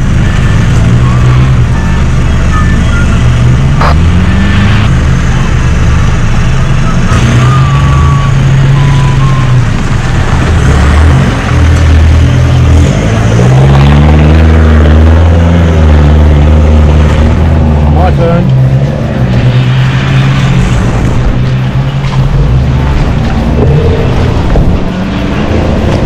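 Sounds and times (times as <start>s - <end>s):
off-road vehicle engine running: 0.0s - 26.0s
wind rush: 19.2s - 26.0s.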